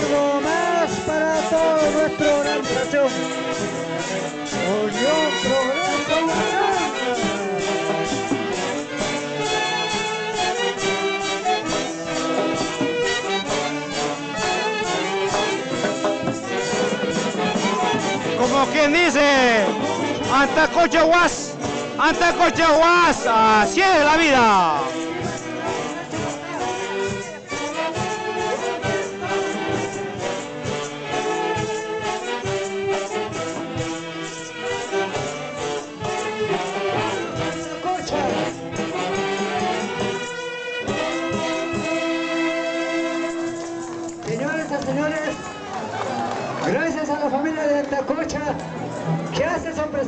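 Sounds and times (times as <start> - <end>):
brass and violins over beat: 0.0 - 50.0
shaken percussion: 0.0 - 50.0.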